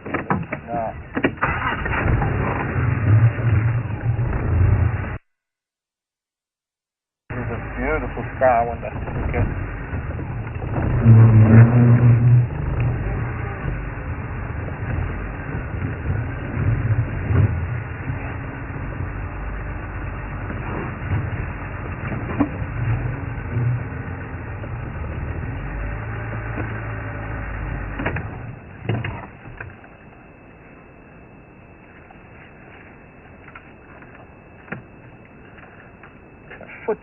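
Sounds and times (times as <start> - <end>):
vehicle engine rumbling: 0.0 - 5.4, 7.0 - 37.0.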